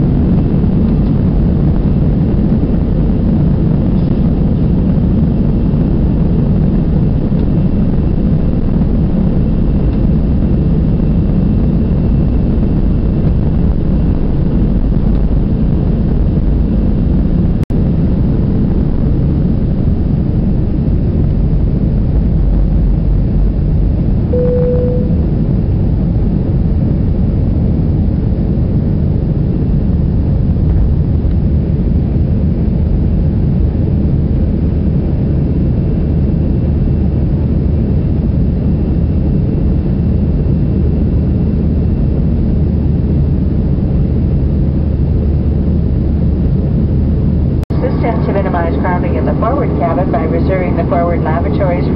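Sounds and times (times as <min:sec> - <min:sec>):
jet engine cabin roar: 0:00.0 - 0:51.9
short single tone: 0:24.3 - 0:25.4.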